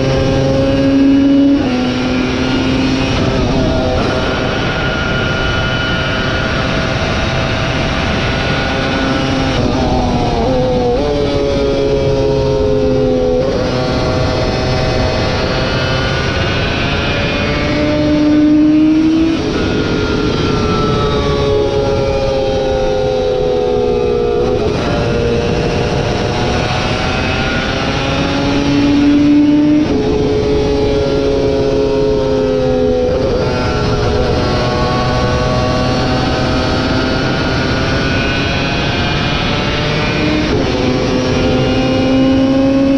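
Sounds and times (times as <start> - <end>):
motorcycle engine at high revs: 0.0 - 42.9.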